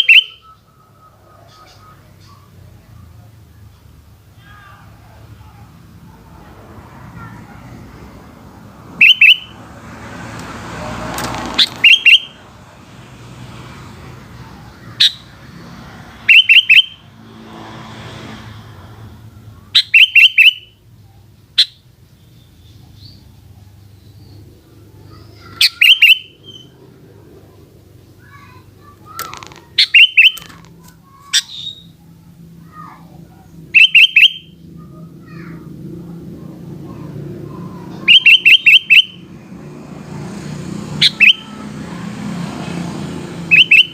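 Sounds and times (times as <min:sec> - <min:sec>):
bulbul singing: 0:00.0 - 0:03.0, 0:08.9 - 0:10.4, 0:11.4 - 0:13.1, 0:13.8 - 0:17.3, 0:19.6 - 0:20.8, 0:21.5 - 0:26.8, 0:28.3 - 0:35.5, 0:36.9 - 0:39.4, 0:40.9 - 0:41.8, 0:43.3 - 0:43.9.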